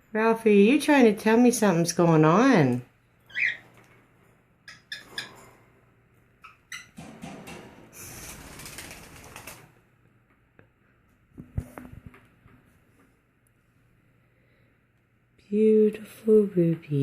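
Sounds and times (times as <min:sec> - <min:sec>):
bird chirp: 0:03.2 - 0:03.8, 0:04.6 - 0:05.4
wings flapping: 0:07.2 - 0:09.8.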